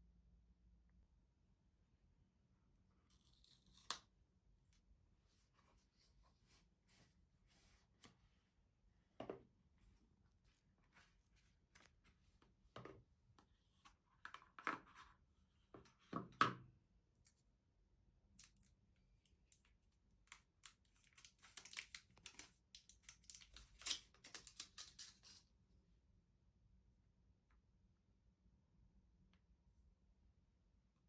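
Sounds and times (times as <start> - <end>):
packaging crinkling and tearing: 20.4 - 25.3.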